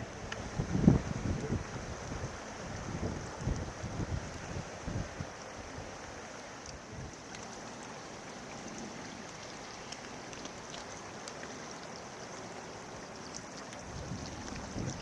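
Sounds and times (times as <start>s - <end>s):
floodwater rushing: 0.0s - 15.0s
faint ticks: 0.1s - 0.5s, 6.3s - 15.0s.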